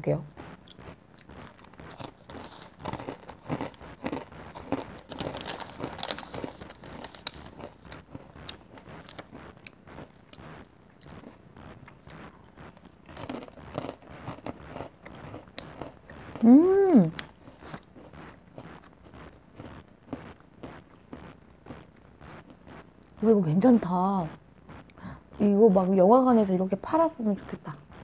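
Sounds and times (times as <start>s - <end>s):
crunchy chewing: 0.3s - 25.4s.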